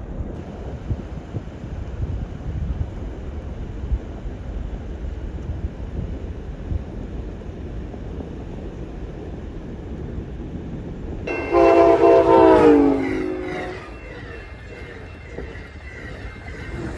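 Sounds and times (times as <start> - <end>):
train horn blast: 11.3 - 16.0.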